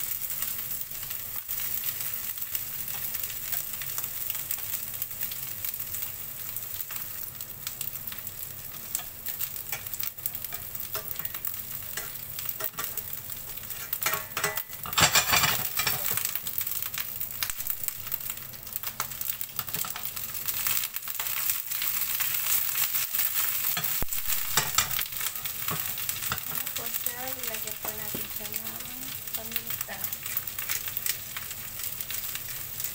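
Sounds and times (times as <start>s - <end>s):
vegetables sizzling in a frying pan: 0.0s - 32.9s
utensils scraping a pan: 9.7s - 13.1s, 13.7s - 16.3s, 23.6s - 26.9s.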